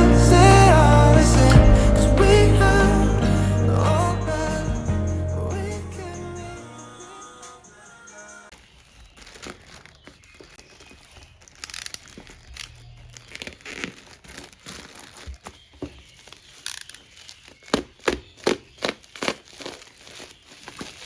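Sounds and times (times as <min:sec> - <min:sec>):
plastic packaging crinkling and tearing: 0:08.5 - 0:21.0.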